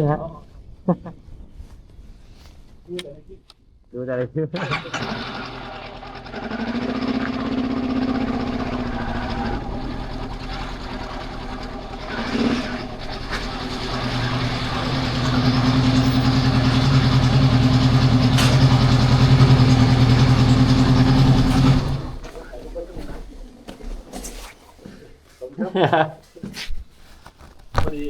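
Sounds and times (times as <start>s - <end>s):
motorcycle engine running: 4.7s - 22.3s.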